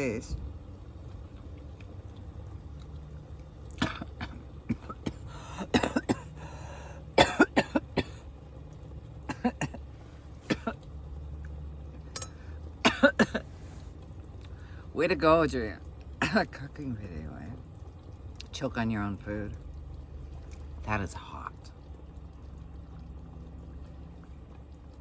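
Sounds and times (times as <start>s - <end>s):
woman coughing and choking: 3.8s - 6.4s, 7.2s - 8.2s, 9.3s - 9.8s, 10.5s - 10.8s, 12.8s - 13.5s, 16.2s - 16.5s.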